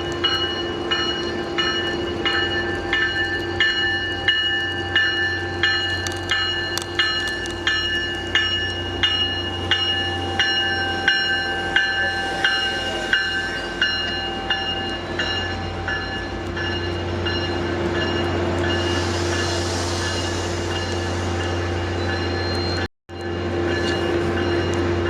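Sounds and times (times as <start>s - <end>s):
train rumbling: 0.0s - 25.0s
bell ringing: 0.2s - 19.0s
hiss: 11.4s - 13.8s, 18.6s - 22.0s.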